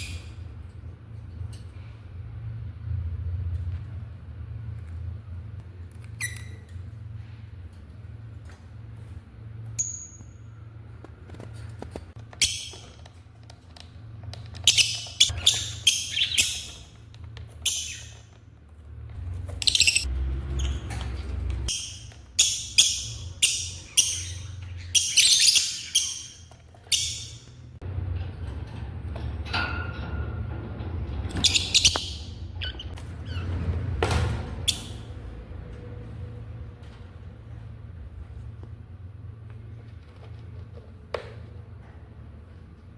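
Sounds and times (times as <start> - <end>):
shrill harsh bird chirps: 14.7 - 16.9, 21.7 - 27.6.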